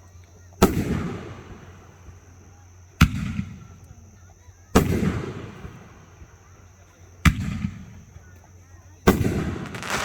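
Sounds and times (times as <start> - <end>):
fireworks banging: 9.4 - 10.0.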